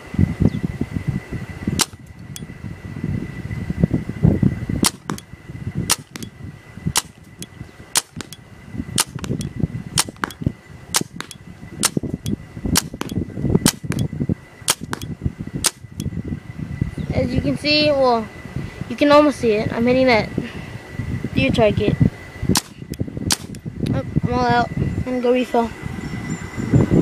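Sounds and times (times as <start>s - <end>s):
paintball marker firing: 1.8s - 2.1s, 4.8s - 5.3s, 5.9s - 6.3s, 7.0s - 7.3s, 8.0s - 8.4s, 9.0s - 12.2s, 12.8s - 14.1s, 14.7s - 16.0s, 22.5s - 23.6s.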